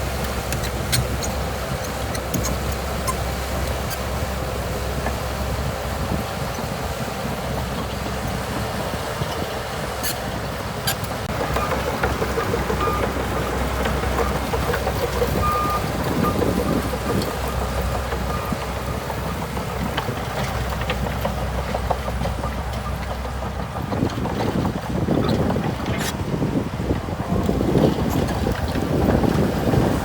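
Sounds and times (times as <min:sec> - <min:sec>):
bulldozer diesel engine: 0:00.0 - 0:30.0
short high squeaks: 0:00.4 - 0:04.1.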